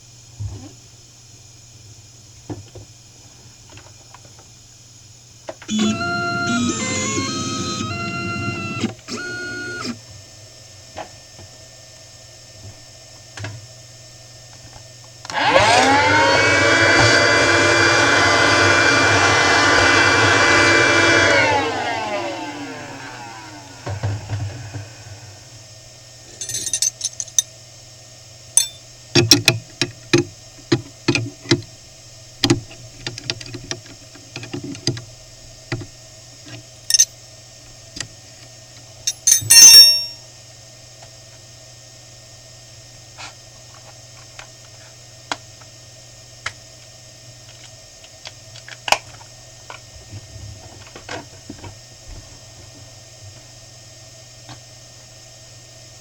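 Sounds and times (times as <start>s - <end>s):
milling machine hum: 5.6s - 10.0s, 15.2s - 27.4s.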